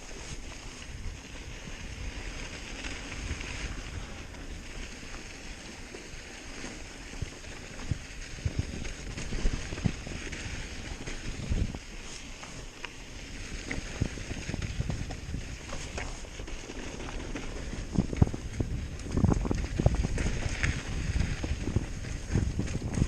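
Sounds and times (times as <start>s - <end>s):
bike tyres rumbling on dirt: 0.0s - 23.0s
wind buffeting microphone: 6.6s - 23.0s.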